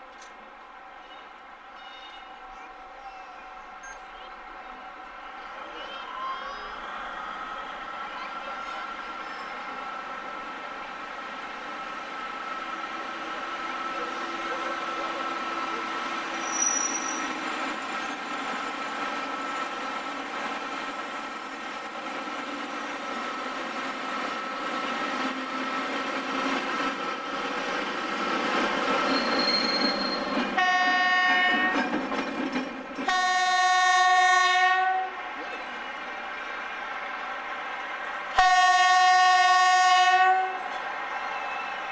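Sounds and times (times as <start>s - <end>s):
locomotive rolling: 11.6s - 33.7s, 34.9s - 36.5s
train horn blasts: 30.6s - 31.9s, 33.1s - 35.3s, 38.4s - 40.8s.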